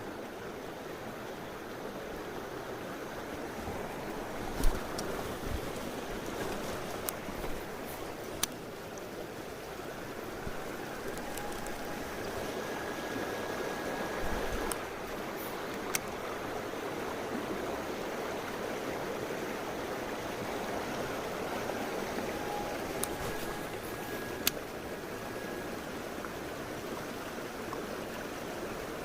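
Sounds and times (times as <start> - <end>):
mountain stream flowing: 0.0 - 29.0
sharp clicks: 24.3 - 24.6.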